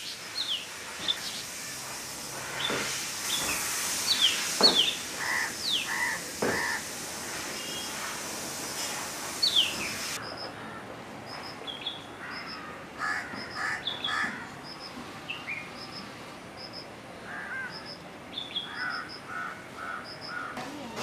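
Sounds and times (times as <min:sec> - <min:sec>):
lower bird calls: 0:09.4 - 0:20.6.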